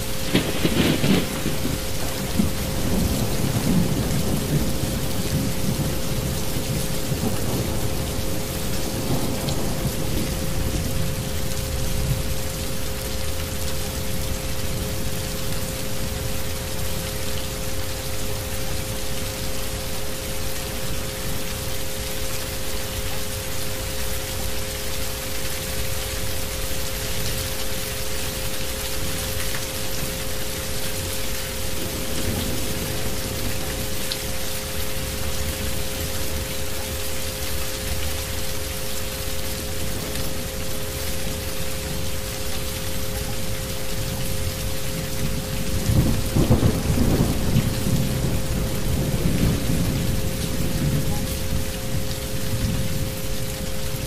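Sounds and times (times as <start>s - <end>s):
steady rain: 0.0s - 54.0s
low roll of thunder: 0.1s - 13.0s, 31.7s - 36.5s, 45.0s - 53.2s.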